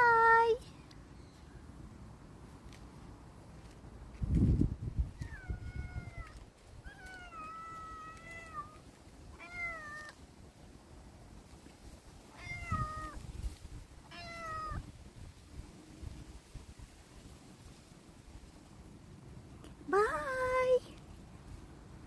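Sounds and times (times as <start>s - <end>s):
cat meowing: 5.2s - 8.8s, 9.4s - 10.2s, 12.3s - 13.2s, 14.1s - 14.9s.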